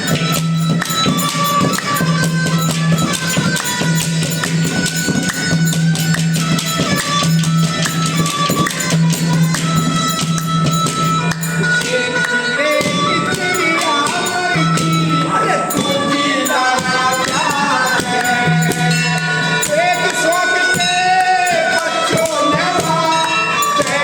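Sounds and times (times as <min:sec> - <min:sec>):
bending folk melody: 0:00.0 - 0:24.0
jingling tambourine-like percussion: 0:00.0 - 0:24.0.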